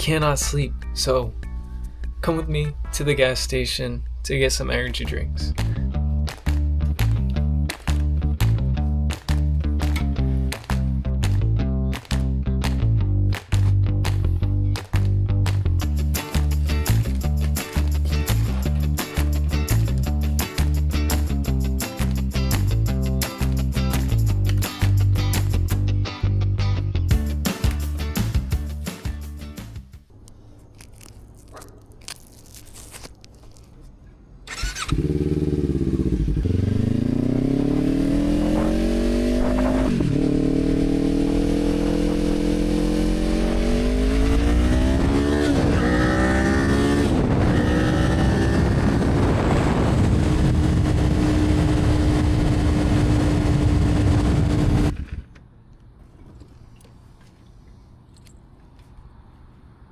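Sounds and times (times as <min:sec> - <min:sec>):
motorcycle engine accelerating: 0:00.0 - 0:08.1, 0:34.5 - 0:55.3.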